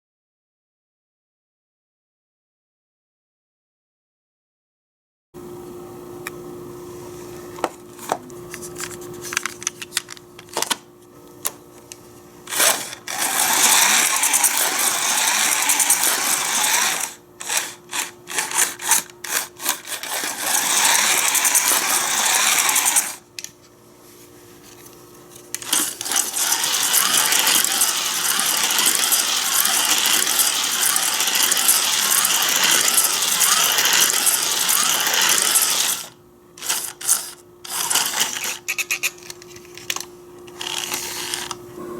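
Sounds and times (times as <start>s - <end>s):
toy slot car motor rattling: 12.5s - 23.3s, 25.5s - 41.6s.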